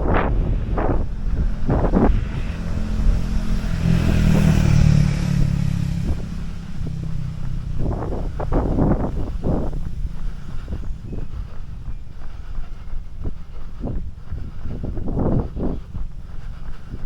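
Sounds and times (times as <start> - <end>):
motor vehicle passing by: 0.0 - 17.0
wind noise on microphone: 0.0 - 17.0.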